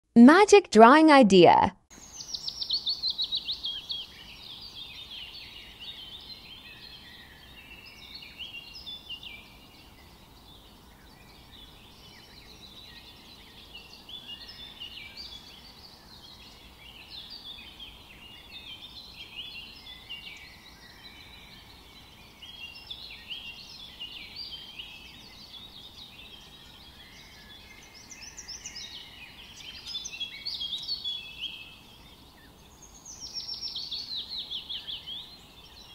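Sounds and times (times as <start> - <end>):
songbirds chirping and singing: 2.0 - 35.9.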